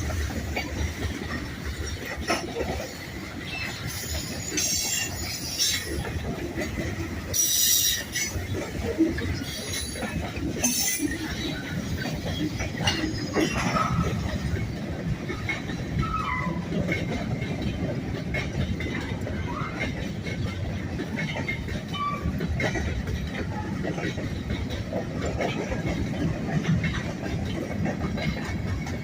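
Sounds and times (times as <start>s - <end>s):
model train rumbling: 0.0s - 29.0s.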